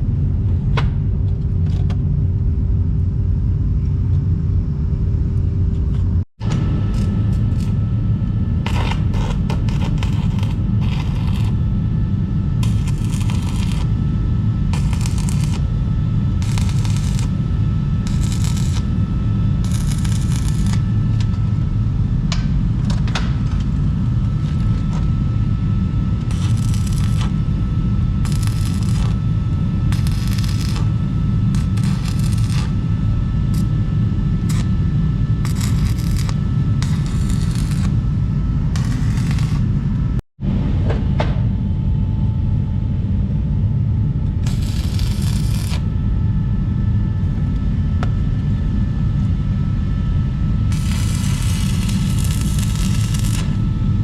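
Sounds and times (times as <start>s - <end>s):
low rumble: 0.0s - 54.0s
scraping on steel: 8.7s - 11.6s, 38.8s - 39.7s.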